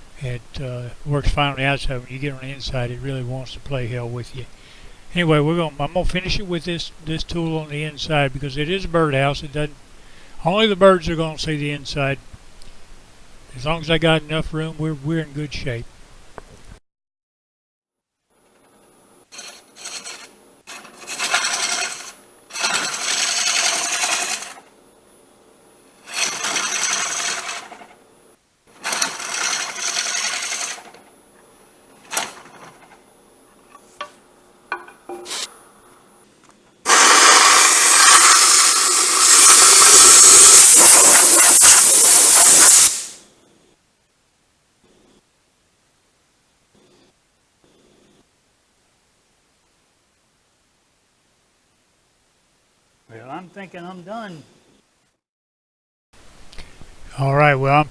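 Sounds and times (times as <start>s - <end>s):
hollowing tool scraping wood: 19.3s - 24.7s, 26.0s - 28.0s, 28.8s - 31.0s, 36.9s - 43.1s
loud continuous cutting noise: 19.8s - 24.7s, 36.9s - 41.9s
faint high whine: 43.1s - 55.2s.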